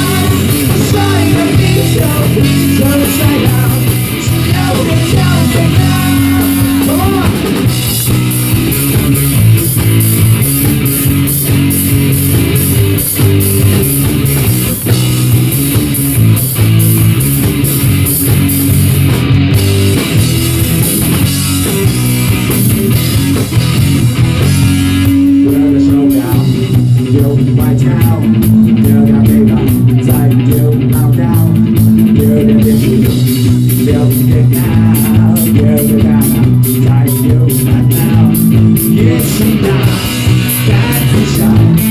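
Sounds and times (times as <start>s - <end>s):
rock band playing instrumental: 0.0s - 41.9s.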